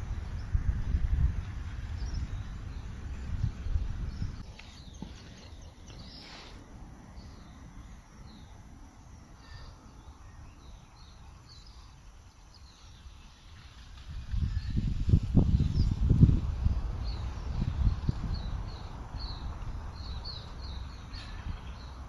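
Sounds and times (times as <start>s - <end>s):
faint bird chirps: 2.0s - 13.6s, 17.1s - 22.0s.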